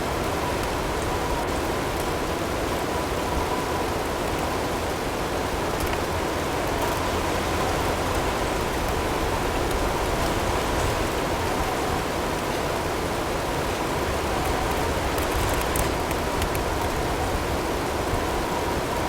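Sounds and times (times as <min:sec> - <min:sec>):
storm wind and blowing snow: 0:05.4 - 0:19.0.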